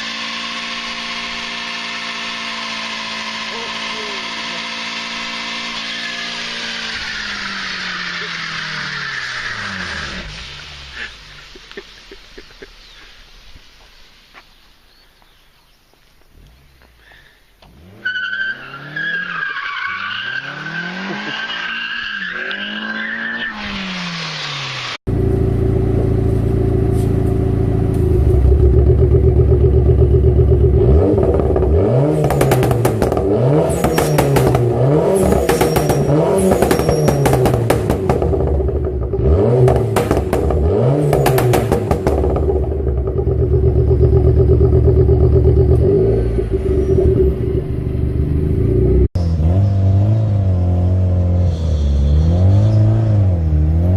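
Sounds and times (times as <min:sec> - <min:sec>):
car engine revving: 0:00.0 - 0:12.6, 0:17.6 - 0:53.9
engine crackling: 0:00.0 - 0:15.3, 0:22.2 - 0:53.9
tires squealing: 0:01.6 - 0:12.0, 0:17.0 - 0:25.0, 0:30.8 - 0:53.9.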